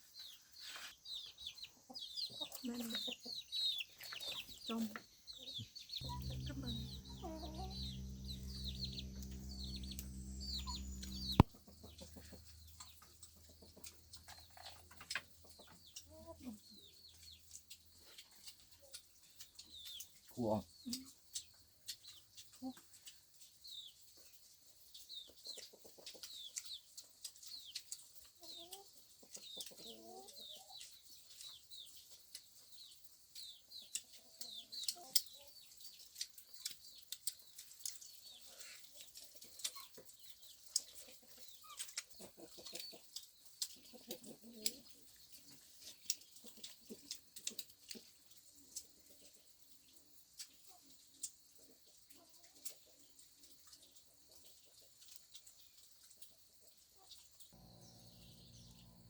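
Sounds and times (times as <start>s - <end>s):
chickens clucking: 0.2s - 59.0s
high falling chirps: 6.0s - 14.2s, 57.6s - 59.0s.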